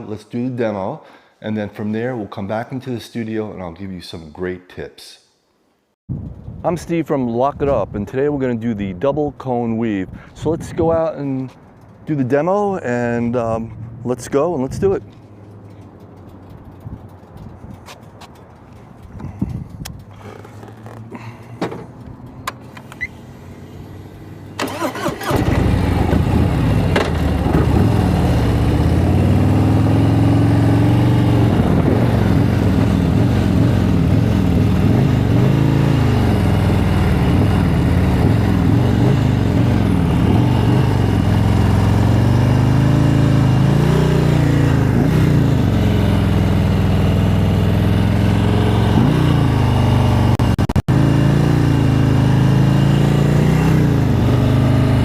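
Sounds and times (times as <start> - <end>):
motorcycle engine starting and idling: 15.0 - 51.0.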